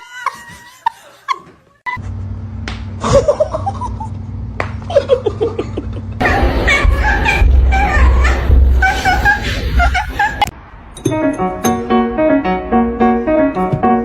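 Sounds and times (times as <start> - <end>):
steady low hum: 2.0 - 10.5
person laughing: 3.0 - 4.2, 4.8 - 10.5.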